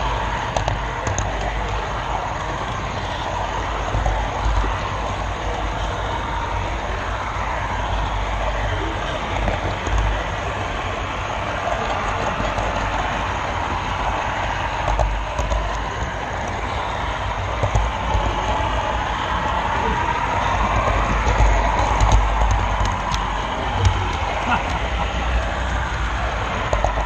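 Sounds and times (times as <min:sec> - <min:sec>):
model train rolling rumble: 0:00.0 - 0:27.0.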